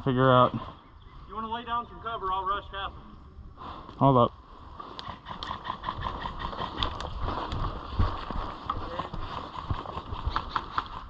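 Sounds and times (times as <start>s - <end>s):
footsteps: 4.7s - 11.0s.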